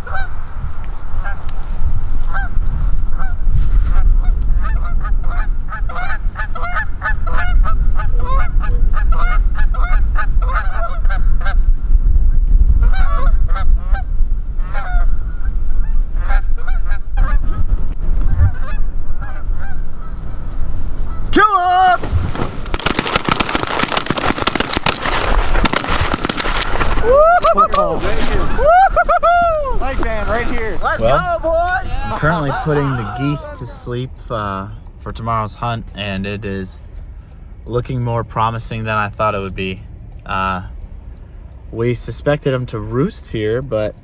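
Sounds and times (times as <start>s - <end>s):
geese honking: 0.0s - 0.4s, 18.3s - 20.2s
steady low rumble: 0.0s - 44.0s.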